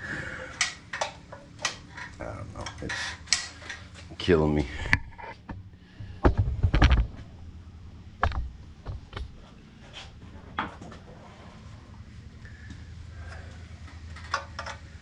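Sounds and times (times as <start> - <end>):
metal parts and tools clanking: 13.9 - 15.0.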